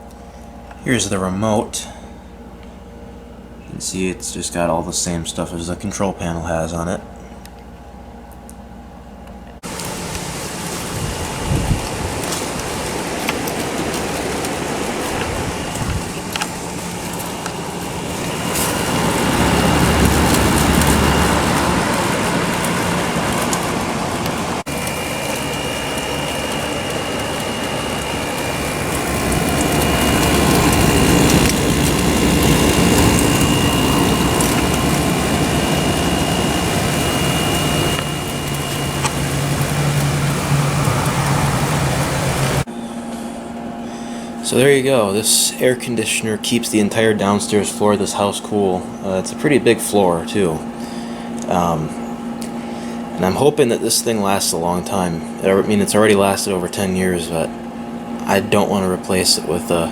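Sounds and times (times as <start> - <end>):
air conditioner fan blowing: 0.0 - 59.9
compressor humming: 0.0 - 59.9
faint high whine: 8.8 - 59.9.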